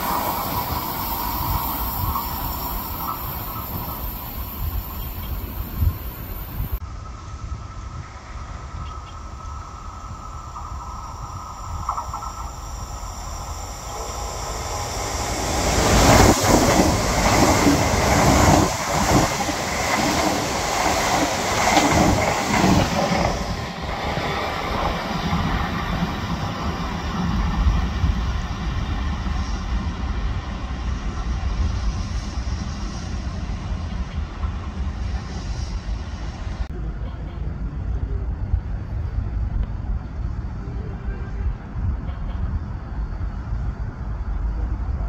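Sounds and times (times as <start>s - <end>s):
train passing on rails: 0.0s - 45.0s
wheels clacking over rail joints: 14.7s - 27.8s.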